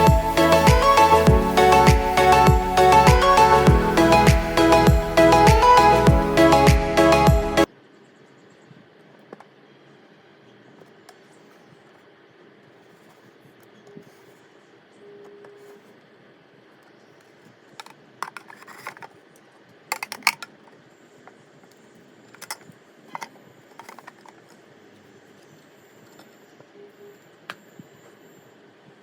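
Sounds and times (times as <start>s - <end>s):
plastic object clicking and knocking: 17.8s - 19.1s, 19.9s - 20.6s.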